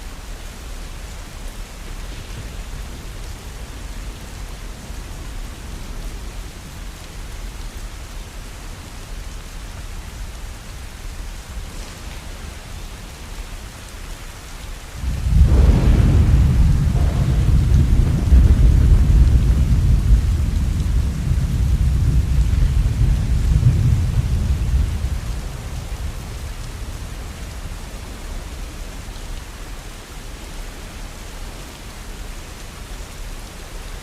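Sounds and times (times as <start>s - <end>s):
steady rain: 0.0s - 34.0s
rolling thunder: 14.9s - 29.1s.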